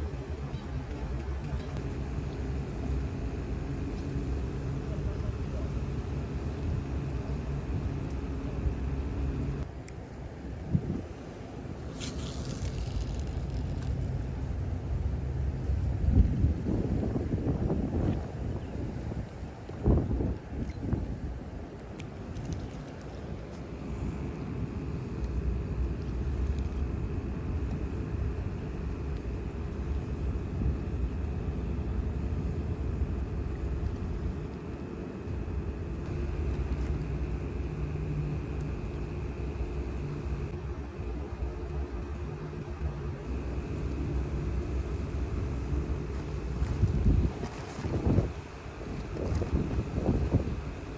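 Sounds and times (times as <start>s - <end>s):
engine running with whine: 0.0s - 18.9s, 19.9s - 50.9s
wind buffeting microphone: 12.0s - 23.8s, 46.3s - 50.9s.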